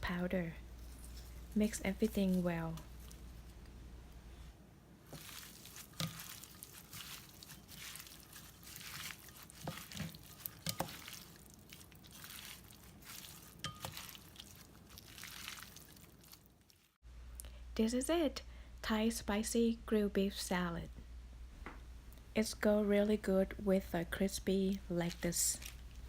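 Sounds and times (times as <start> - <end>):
salad being mixed rustling: 0.6 - 4.4, 5.0 - 17.0, 24.6 - 26.0.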